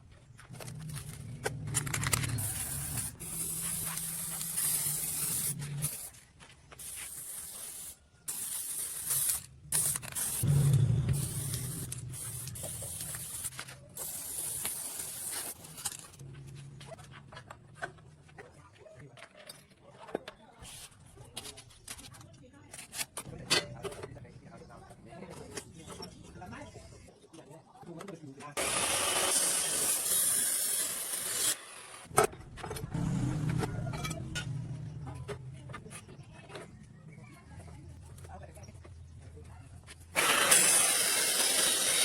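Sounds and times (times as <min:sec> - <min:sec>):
arc welding crackling: 0:02.0 - 0:06.2, 0:06.8 - 0:15.8.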